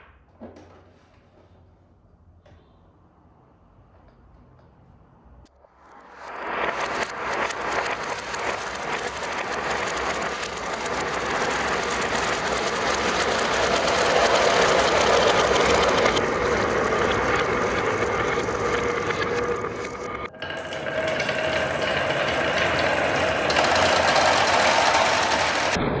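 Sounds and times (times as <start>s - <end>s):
marbles rattling down tracks: 6.8s - 16.2s, 20.3s - 25.8s.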